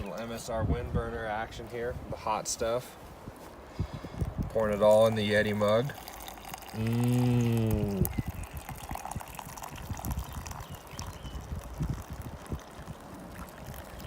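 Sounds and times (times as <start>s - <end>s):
liquid pouring into mug: 4.2s - 14.0s
person humming mmm: 6.8s - 8.2s.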